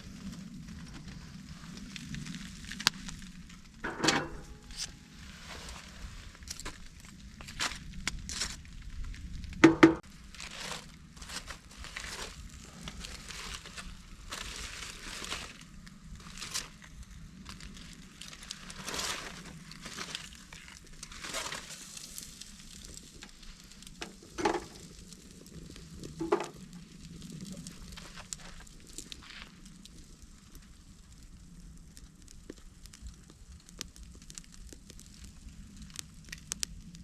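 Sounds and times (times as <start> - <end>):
rustling and crinkling: 0.0 - 37.0
sharp knocks: 9.6 - 10.0.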